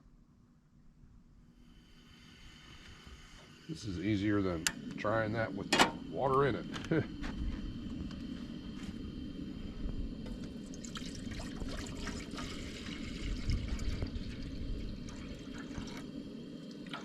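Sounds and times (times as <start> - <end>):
water pouring into a pot: 10.6 - 17.0.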